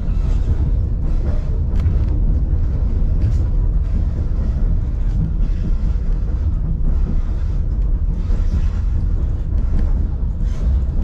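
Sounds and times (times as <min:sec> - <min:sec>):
train cars rumbling on track: 0:00.0 - 0:11.0.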